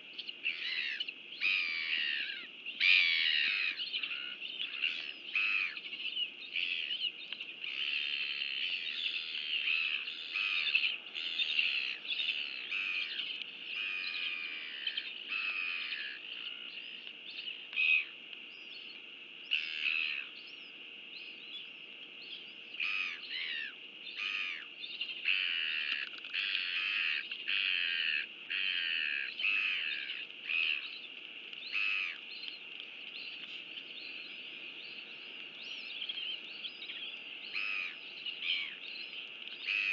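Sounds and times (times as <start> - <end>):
birds calling and chirping: 0.0 - 39.9.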